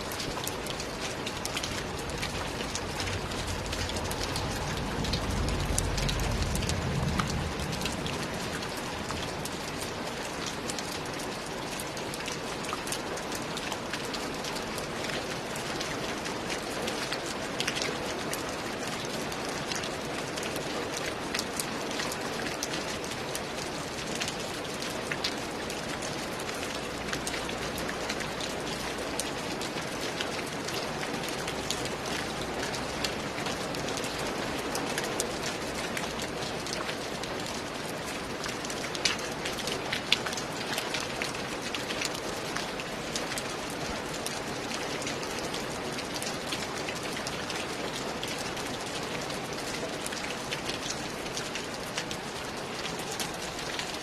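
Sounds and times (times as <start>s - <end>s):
sharp ticks of raindrops: 0.0s - 54.0s
steady rain hiss: 0.0s - 54.0s.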